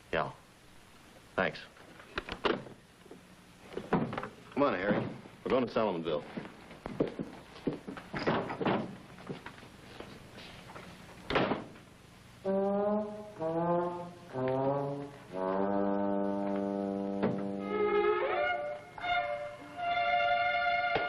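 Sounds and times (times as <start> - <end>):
brass music cue: 12.4 - 21.0.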